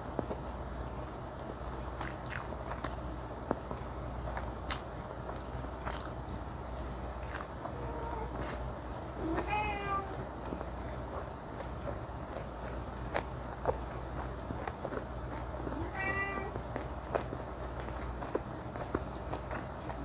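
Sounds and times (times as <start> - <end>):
wet chewing: 1.4 - 20.0.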